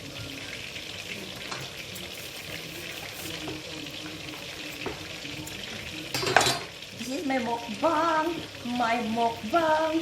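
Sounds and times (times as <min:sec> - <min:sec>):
oil crackling and popping: 0:00.0 - 0:07.6
chicken frying in hot oil: 0:00.0 - 0:10.0.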